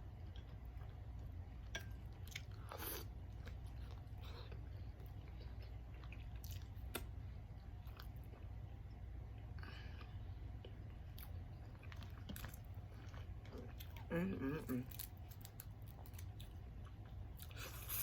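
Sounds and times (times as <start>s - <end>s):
person chewing food: 0.0s - 18.0s
steady low hum: 0.0s - 18.0s.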